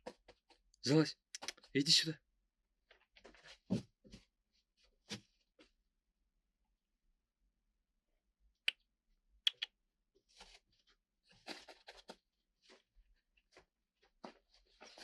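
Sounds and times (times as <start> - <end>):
soft rustling and shuffling: 2.9 - 5.8, 10.2 - 15.0
sharp clicks: 9.5 - 9.7.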